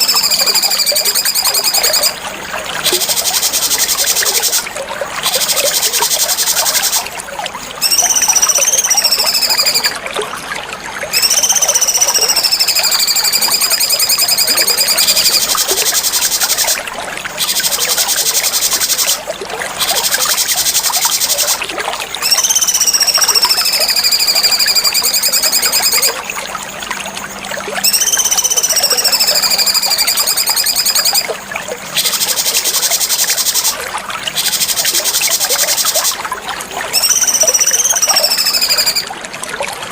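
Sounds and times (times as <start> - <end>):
bird whistling long notes: 0.0 - 2.2, 7.8 - 10.0, 11.1 - 16.8, 22.2 - 26.2, 27.8 - 31.3, 36.9 - 39.1
high pulsing cicada-like buzz: 11.2 - 16.8, 22.2 - 26.1, 27.8 - 31.3, 37.0 - 39.0.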